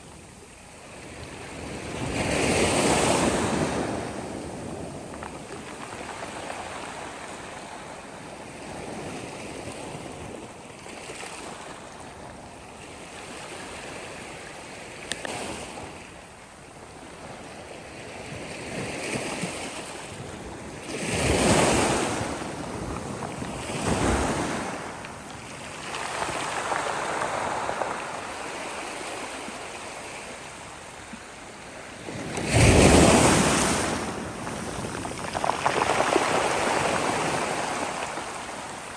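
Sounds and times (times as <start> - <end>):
sea waves breaking on shore: 18.6 - 38.9.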